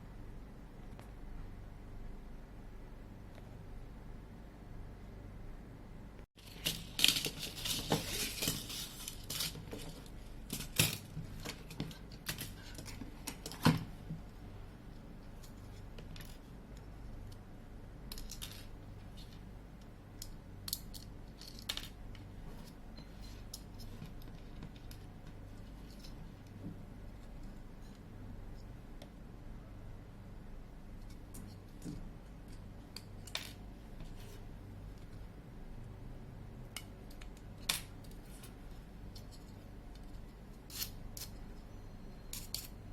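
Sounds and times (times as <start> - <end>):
small tools clicking and scraping: 6.4 - 13.7, 36.7 - 41.5, 42.3 - 42.8.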